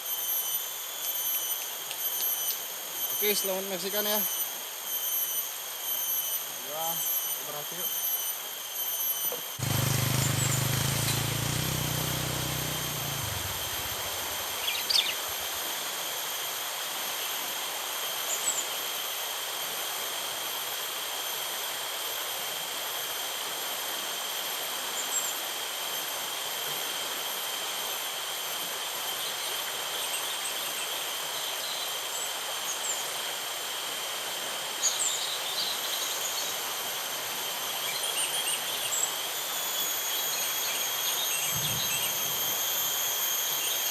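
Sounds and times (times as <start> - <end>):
high insect drone: 0.0 - 43.9
low hum: 9.6 - 15.6
even hiss: 9.6 - 16.0
short bird chirps: 14.3 - 15.3.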